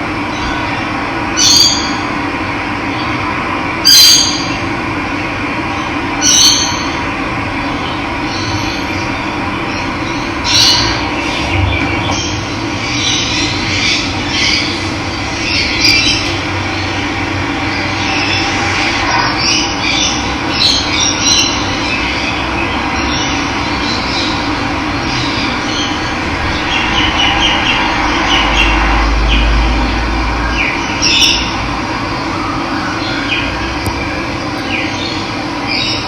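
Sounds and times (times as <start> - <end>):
birds chirping and calling: 0.2 - 2.1, 2.8 - 4.7, 5.7 - 36.0.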